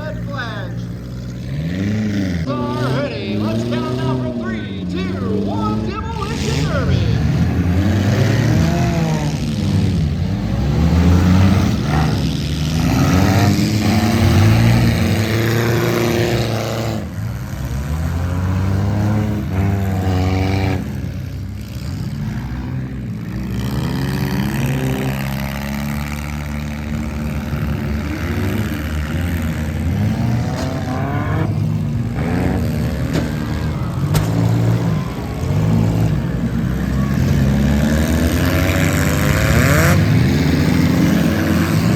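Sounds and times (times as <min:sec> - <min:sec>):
car engines revving: 0:00.0 - 0:41.9.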